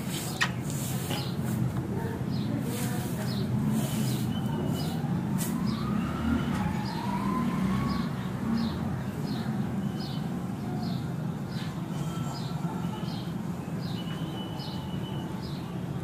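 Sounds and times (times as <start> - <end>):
faint siren-like wail: 4.5 - 8.6.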